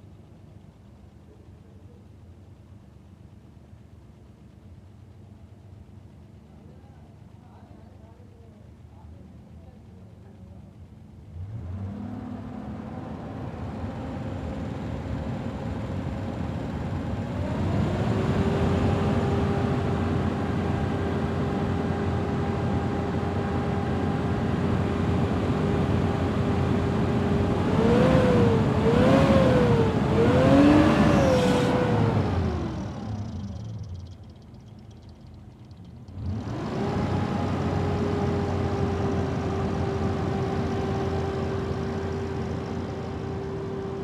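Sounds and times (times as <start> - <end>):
car engine running and revving: 11.3 - 44.0.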